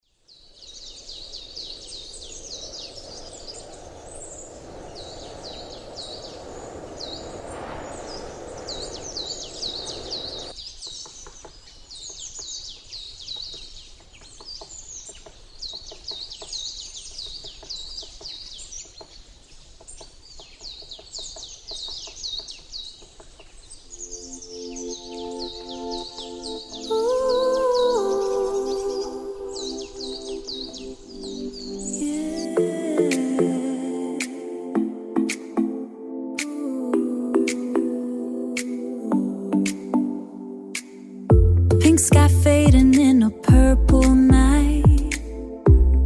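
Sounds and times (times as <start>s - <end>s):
small birds chirping: 0.0s - 33.5s
rushing noise: 1.8s - 10.6s.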